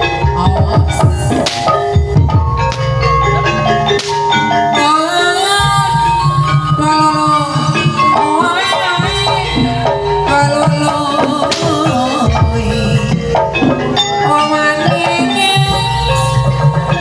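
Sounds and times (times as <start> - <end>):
gamelan ensemble playing: 0.0 - 17.0
sliding melody line: 1.2 - 5.6, 10.3 - 15.1.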